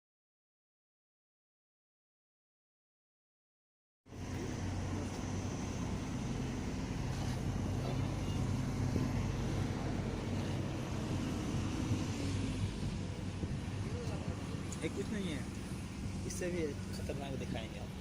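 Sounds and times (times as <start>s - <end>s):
constant rushing noise: 4.1s - 18.0s
vehicle engine humming: 4.1s - 18.0s.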